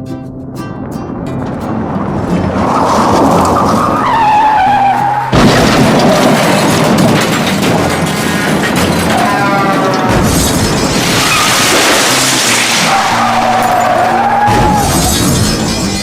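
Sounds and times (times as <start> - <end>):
rushing car noise: 0.4 - 16.0
loud boom: 5.3 - 9.1, 10.1 - 13.2.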